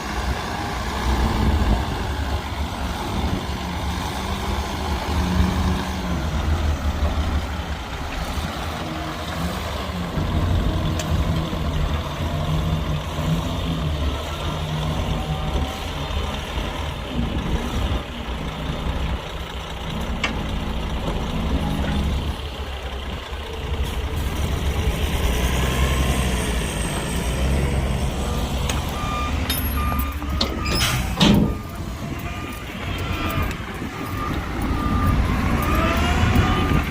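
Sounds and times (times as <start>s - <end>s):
heavy diesel engines working: 0.0s - 36.9s.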